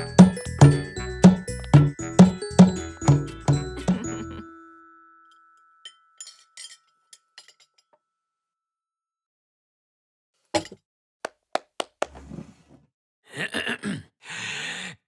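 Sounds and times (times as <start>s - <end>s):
musical chime ringing: 0.0s - 6.8s
dishes and cutlery clinking: 5.8s - 7.9s.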